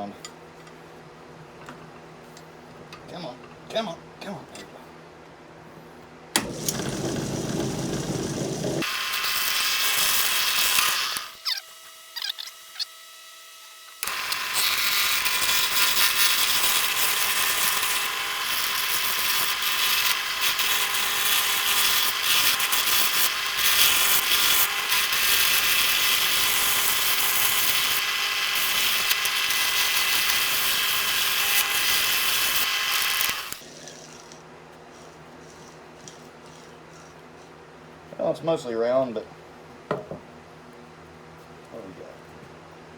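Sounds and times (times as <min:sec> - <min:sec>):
gouge cutting wood on lathe: 0:06.4 - 0:08.9
lathe running hum: 0:06.4 - 0:09.0.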